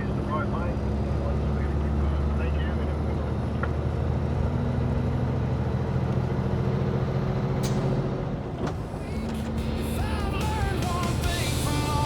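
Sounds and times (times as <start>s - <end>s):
road noise: 0.0s - 12.0s
truck engine running: 0.0s - 12.0s.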